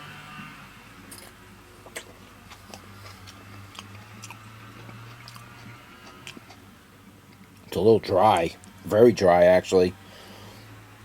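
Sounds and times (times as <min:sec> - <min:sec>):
person chewing with mouth clicks: 0:01.1 - 0:06.7.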